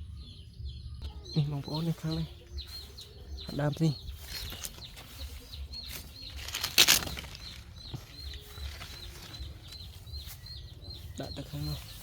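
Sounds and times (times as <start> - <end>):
loud rustling: 4.2 - 10.7.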